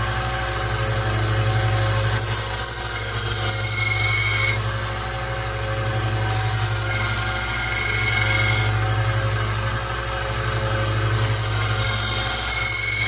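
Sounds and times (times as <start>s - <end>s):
blade hissing on sanding belt: 1.2s - 4.7s, 6.1s - 9.1s, 11.0s - 13.0s.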